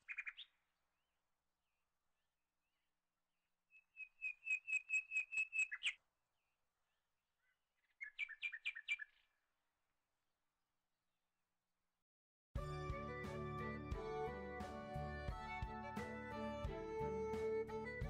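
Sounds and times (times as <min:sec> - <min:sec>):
bird chirping: 0:00.0 - 0:00.6, 0:03.7 - 0:06.1, 0:07.4 - 0:09.4.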